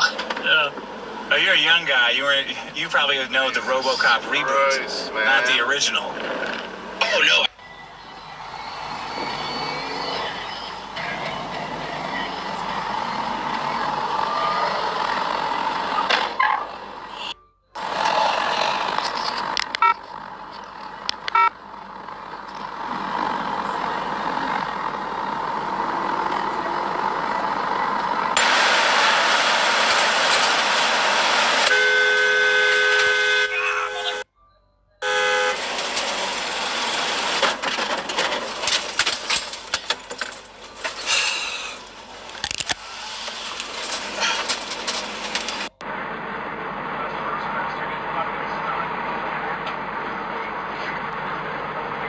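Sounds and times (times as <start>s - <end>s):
road traffic noise: 0.0s - 34.3s, 35.0s - 52.0s
car horn sounding: 1.4s - 20.0s, 30.7s - 37.8s.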